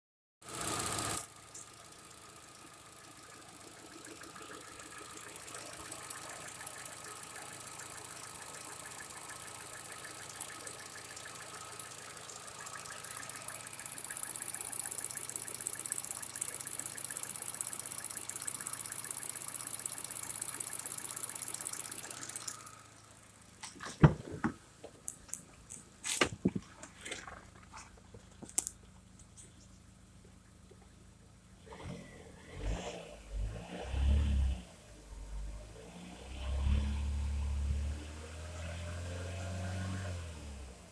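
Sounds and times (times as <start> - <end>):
car engine idling: 0.4 - 31.7
sharp knocks and clunks: 23.6 - 25.0.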